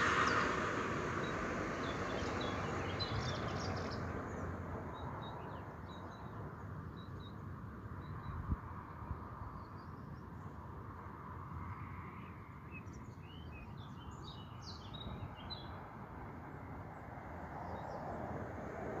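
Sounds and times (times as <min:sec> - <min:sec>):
small birds chirping: 0:01.2 - 0:07.4.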